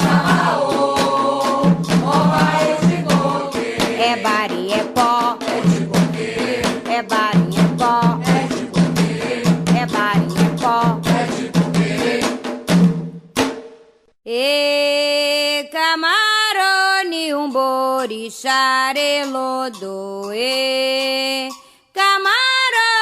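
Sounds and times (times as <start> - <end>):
sung chant: 0.0 - 12.4
drumming: 0.0 - 14.0.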